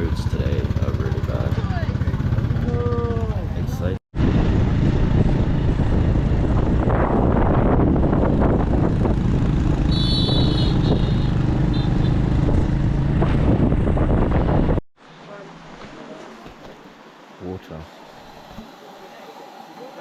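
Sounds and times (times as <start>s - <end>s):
motorbike engine running: 0.0s - 14.2s.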